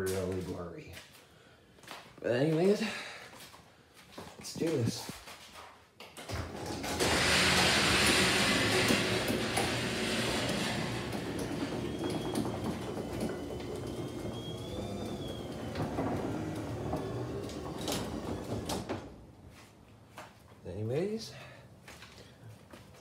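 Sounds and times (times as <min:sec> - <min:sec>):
garage door opener rumbling: 0:06.2 - 0:19.4.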